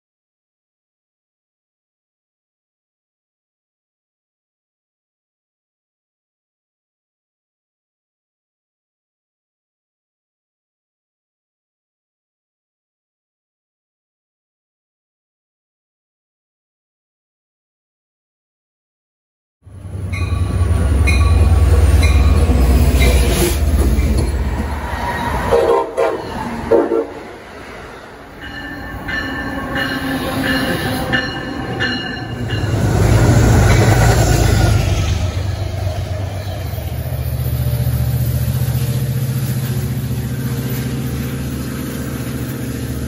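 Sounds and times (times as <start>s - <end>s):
train horn: 25.4s - 27.4s.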